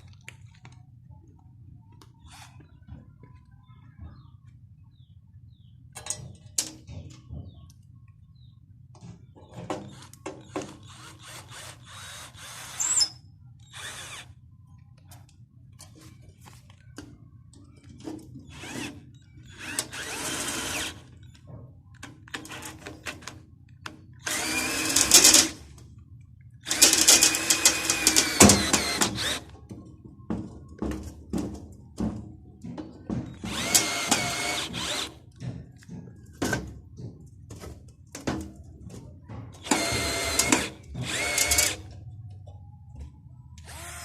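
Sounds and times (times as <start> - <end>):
handheld power tool running: 26.7 - 29.4, 33.4 - 35.2, 39.6 - 41.8.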